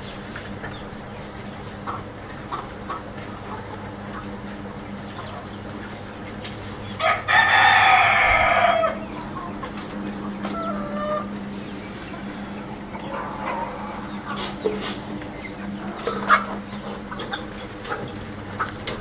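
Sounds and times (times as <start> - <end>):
rooster clucking: 6.7 - 19.0
rooster crowing: 7.0 - 9.1.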